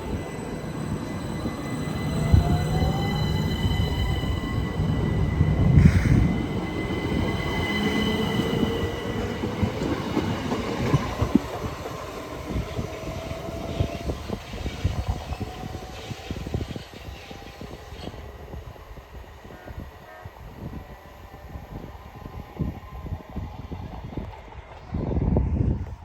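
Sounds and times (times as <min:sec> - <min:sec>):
high-pitched squeal: 0:00.0 - 0:09.1
electric train motor whine: 0:00.0 - 0:09.3.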